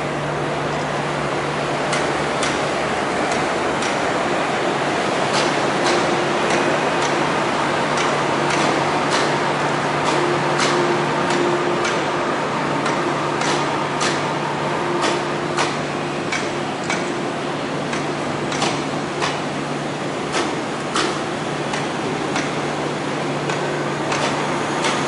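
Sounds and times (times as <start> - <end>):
low hum of running train: 0.0 - 25.0
train wheels clicking over rail joints: 1.9 - 2.7, 7.9 - 9.4, 10.0 - 12.1, 12.8 - 14.4, 17.9 - 19.5, 20.3 - 22.7.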